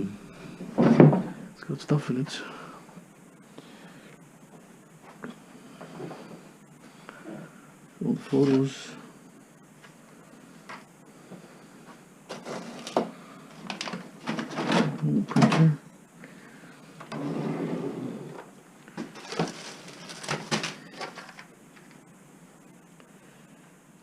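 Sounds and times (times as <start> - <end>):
rustling: 18.4 - 22.0.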